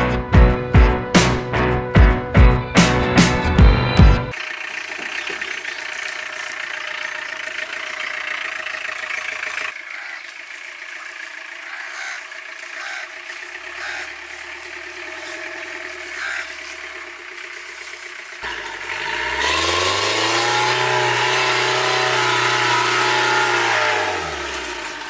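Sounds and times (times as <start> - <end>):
motor running: 4.3 - 25.0.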